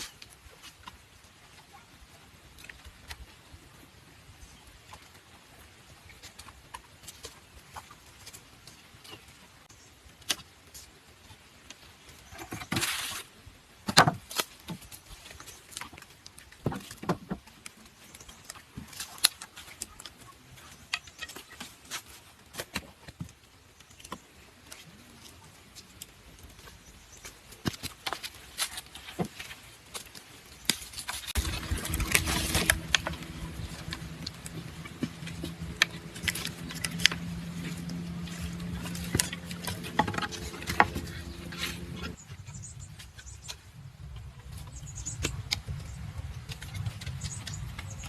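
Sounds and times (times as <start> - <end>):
taps and knocks on bamboo: 13.8 - 14.9, 15.8 - 17.7, 27.6 - 42.2
scraping rasp: 31.3 - 42.2.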